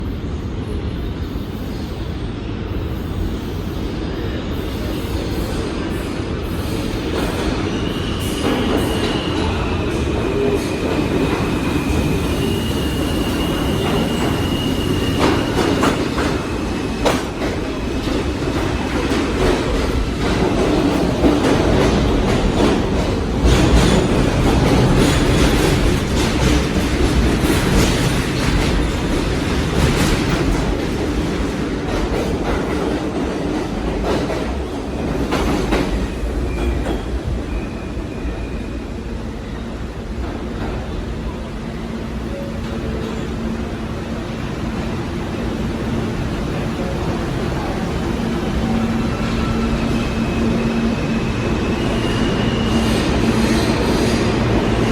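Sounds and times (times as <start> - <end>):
train wheels rumbling on rail: 0.0 - 54.9
high wheel squeal: 7.4 - 16.0, 49.0 - 54.4.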